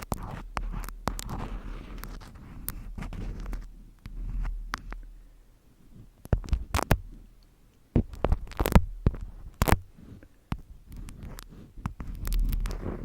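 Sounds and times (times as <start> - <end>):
steady low hum: 0.0 - 13.0
objects being handled tapping: 6.2 - 7.2, 8.0 - 13.0.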